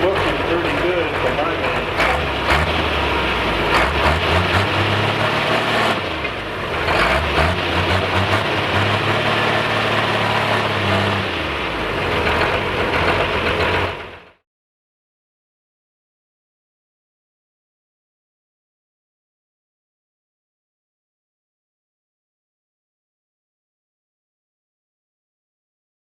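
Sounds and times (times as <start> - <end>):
heavy engine running: 0.0 - 14.4
outdoor noise: 0.0 - 14.4.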